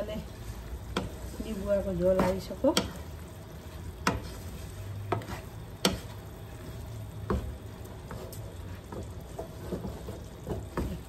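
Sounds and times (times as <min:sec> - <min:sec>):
spices sizzling in oil: 0:00.0 - 0:11.0
wooden spoon knocking on pan: 0:00.9 - 0:03.1, 0:04.0 - 0:04.4, 0:05.0 - 0:06.2, 0:07.2 - 0:11.0.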